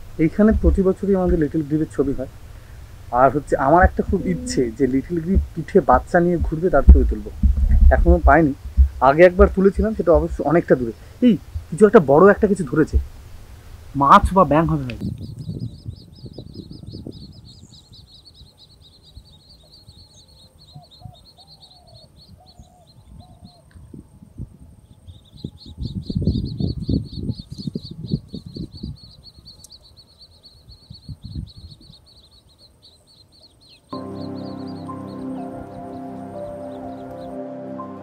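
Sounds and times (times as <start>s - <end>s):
grebe chicks begging chatter: 0.0s - 7.3s, 14.0s - 23.8s, 24.9s - 37.4s.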